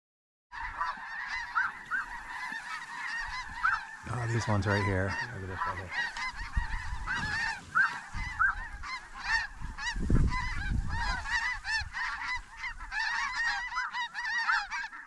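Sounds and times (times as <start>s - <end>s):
geese honking: 0.6s - 15.0s
low wind rumble: 3.2s - 13.0s.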